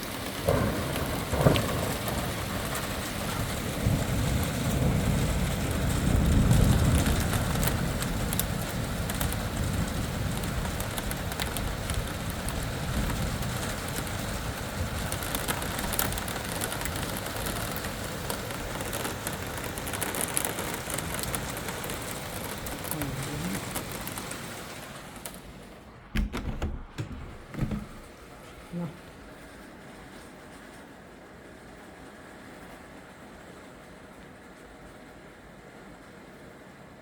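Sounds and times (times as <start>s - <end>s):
rain falling: 0.0s - 37.0s
sharp knocks: 26.1s - 28.1s.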